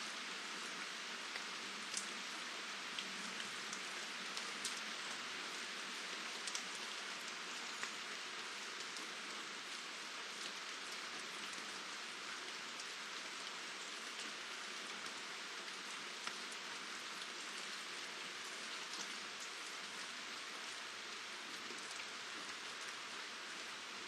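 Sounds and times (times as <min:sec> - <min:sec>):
steady rain falling: 0:00.0 - 0:24.0
sharp raindrop ticks: 0:01.3 - 0:02.2, 0:06.4 - 0:08.0.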